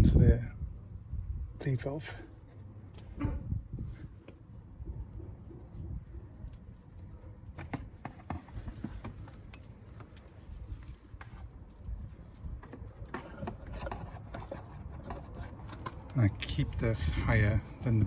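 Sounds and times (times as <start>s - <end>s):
small clicks and knocks of handling: 7.6s - 16.2s.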